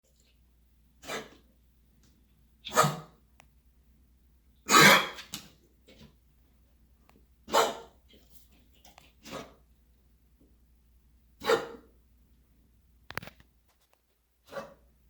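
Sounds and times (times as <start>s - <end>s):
dog coughing: 4.7s - 5.3s.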